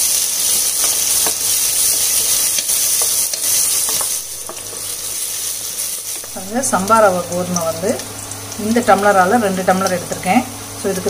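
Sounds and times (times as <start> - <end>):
onions sizzling in hot oil: 0.0 - 11.0
spatula tapping and scraping pan: 0.8 - 4.8.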